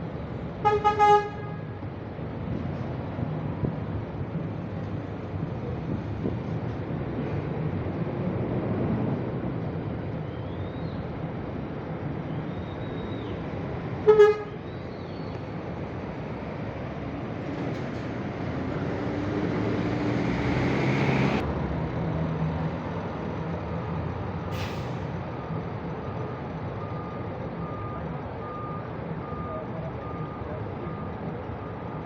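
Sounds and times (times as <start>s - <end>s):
diesel engine revving: 16.3s - 21.4s
air release hiss: 24.6s - 25.0s
reversing beeper: 25.4s - 31.8s.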